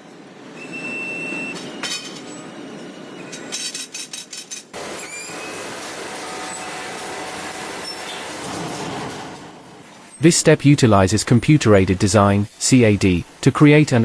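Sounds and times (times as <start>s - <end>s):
high machine whine: 10.2s - 14.0s
steady machinery noise: 10.2s - 14.0s.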